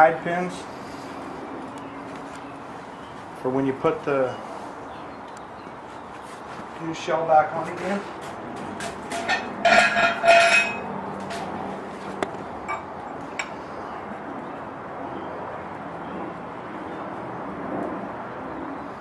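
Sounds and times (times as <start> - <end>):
steady background hum: 0.0 - 19.0
metal tools clinking and rattling: 8.8 - 11.5.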